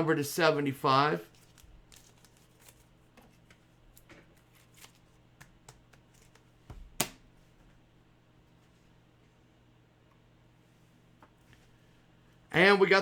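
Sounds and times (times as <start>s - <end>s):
trading cards rustling: 1.3s - 6.5s.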